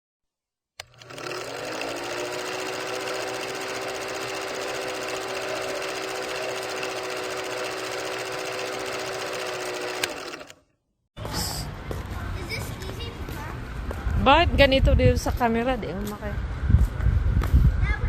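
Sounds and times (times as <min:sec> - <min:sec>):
small motor whining: 0:00.8 - 0:10.6.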